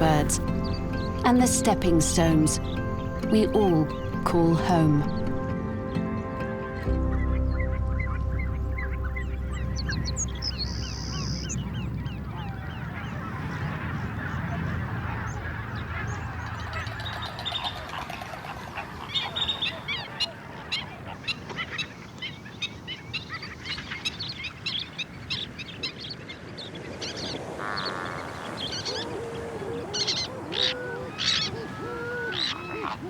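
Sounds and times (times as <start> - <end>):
flock of waterbirds calling: 6.8 - 33.0
low rumble: 6.9 - 13.0.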